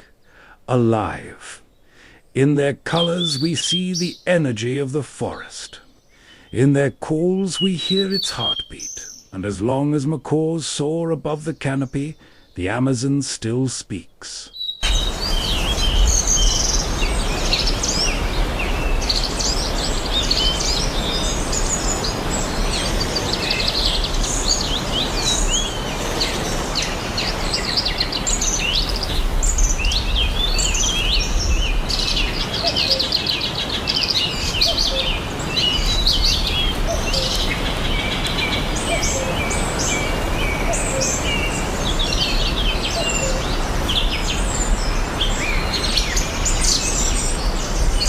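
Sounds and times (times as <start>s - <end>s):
birds chirping and trilling: 0.0s - 48.0s
steady hiss: 14.2s - 48.0s.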